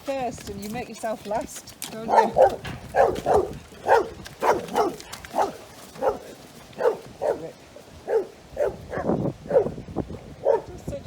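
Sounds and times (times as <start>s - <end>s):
dog barking: 2.1s - 9.8s, 10.4s - 10.7s.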